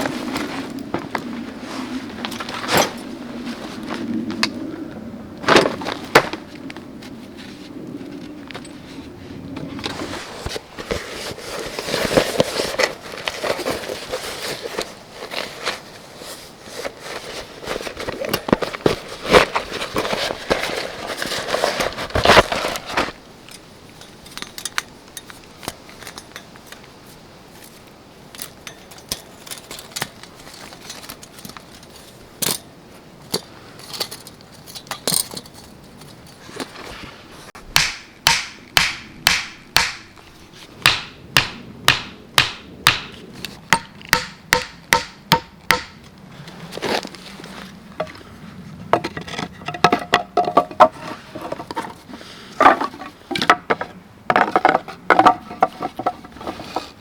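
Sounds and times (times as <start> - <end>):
sharp knocks with metallic ring: 37.8 - 40.1, 43.8 - 46.0.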